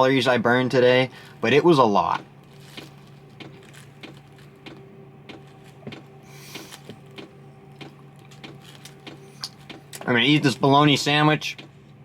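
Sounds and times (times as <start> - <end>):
steady low hum: 0.0 - 12.0
light rustling of objects: 2.4 - 10.2.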